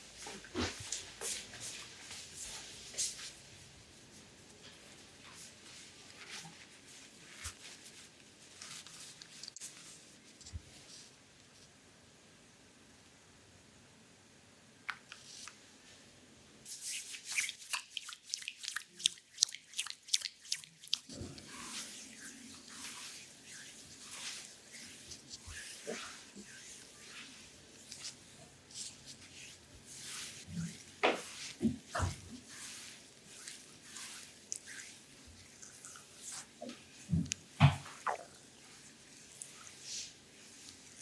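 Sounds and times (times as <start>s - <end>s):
soft rubbing on skin: 0.1s - 11.7s, 16.6s - 41.0s
wet sticky clicks of massage: 7.4s - 10.6s, 17.0s - 21.2s, 32.6s - 39.8s.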